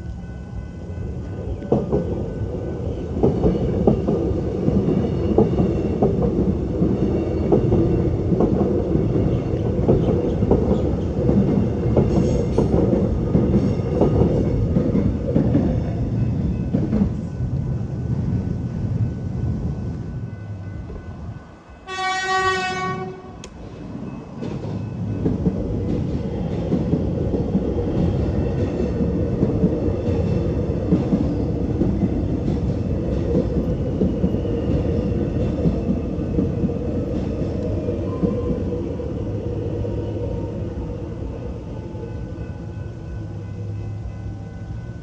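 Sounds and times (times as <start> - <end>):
train wheels rumbling on rails: 0.0 - 45.0
train horn blast: 21.8 - 23.5.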